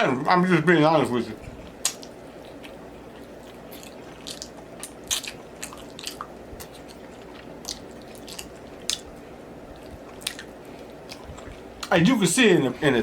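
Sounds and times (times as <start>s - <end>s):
chewing and biting ribs: 1.4s - 11.9s.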